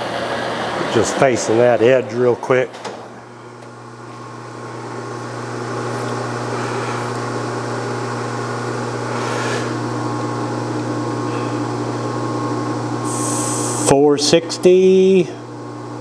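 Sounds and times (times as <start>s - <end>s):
metal lathe humming: 0.0s - 14.0s
brief hiss: 13.1s - 13.9s.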